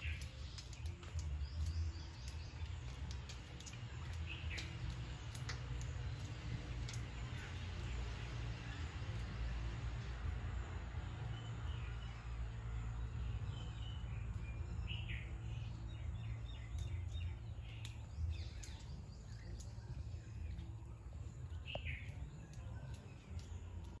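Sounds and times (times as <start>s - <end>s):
faint sharp clicks: 0.0s - 7.5s, 16.2s - 20.7s, 21.5s - 24.0s
birds chirping: 0.0s - 24.0s
low outdoor rumble: 0.0s - 24.0s.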